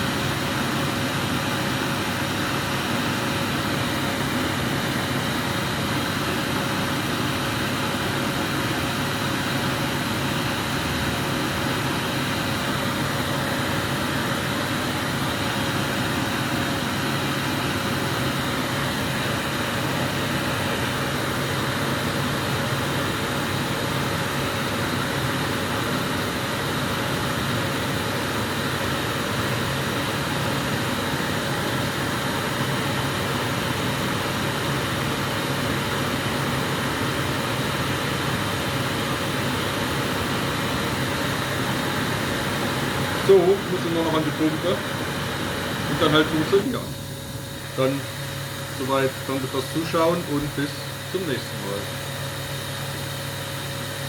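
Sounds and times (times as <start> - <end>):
burner flame hissing: 29.8 - 54.0.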